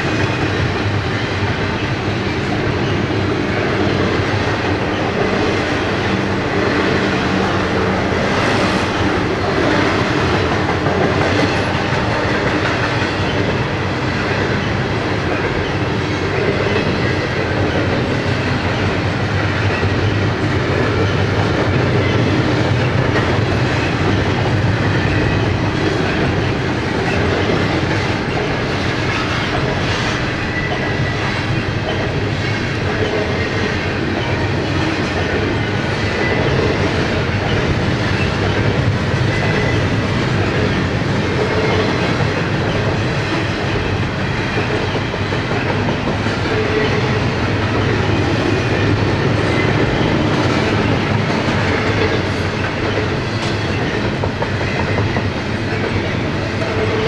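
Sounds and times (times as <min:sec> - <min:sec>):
steel wheels rolling on rail: 0:00.0 - 0:57.0.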